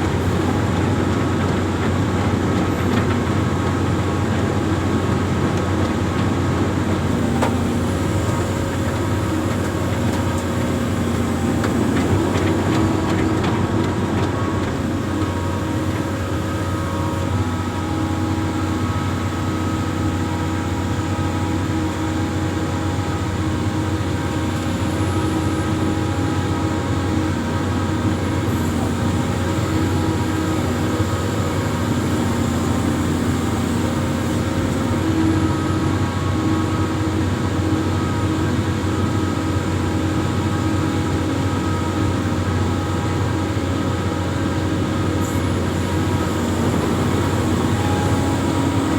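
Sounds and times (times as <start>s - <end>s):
diesel engine running: 0.0s - 48.9s
whining tones: 42.7s - 48.9s.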